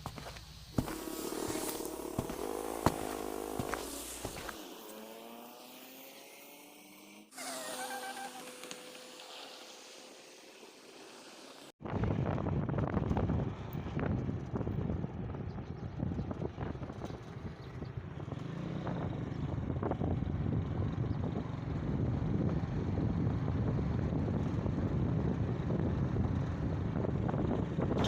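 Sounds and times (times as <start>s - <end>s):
motorbike engine rumble: 0.0s - 5.6s
wind noise on microphone: 11.8s - 28.0s.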